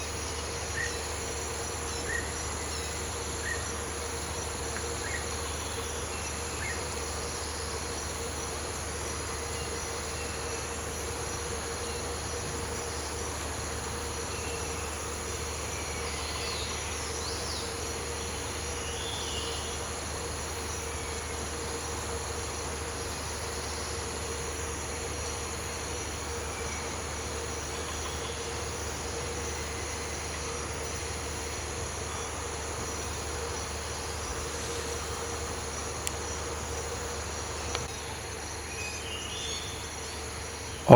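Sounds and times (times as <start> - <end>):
insect chirps: 0.0 - 40.9
insect chorus droning: 0.0 - 40.9.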